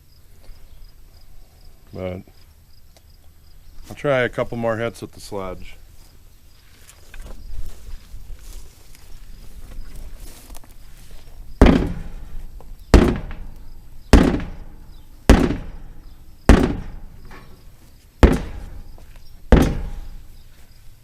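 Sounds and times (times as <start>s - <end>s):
sledgehammer striking a tire: 11.6s - 12.3s, 12.9s - 17.5s, 18.2s - 20.3s.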